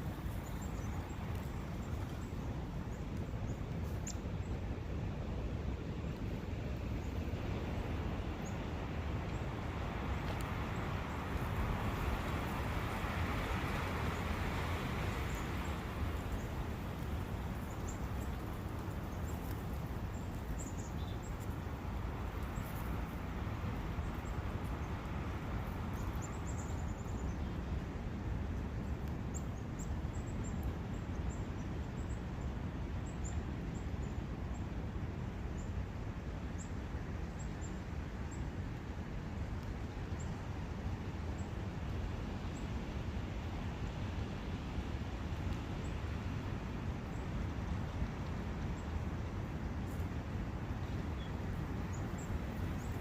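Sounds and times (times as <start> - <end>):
running water of a brook: 0.0 - 34.3.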